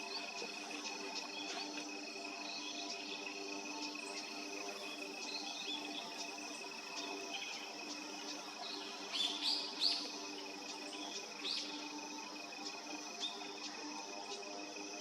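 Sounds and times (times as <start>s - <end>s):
high-pitched ringing background: 0.0s - 15.0s.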